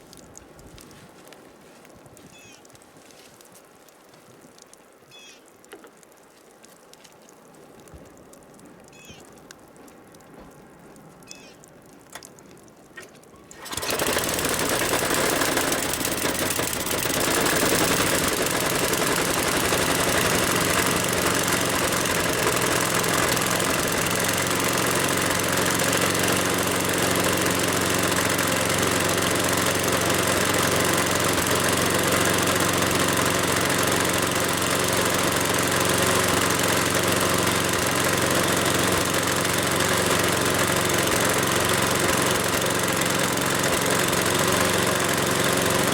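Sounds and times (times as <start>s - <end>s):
snowblower engine running: 13.5s - 45.9s.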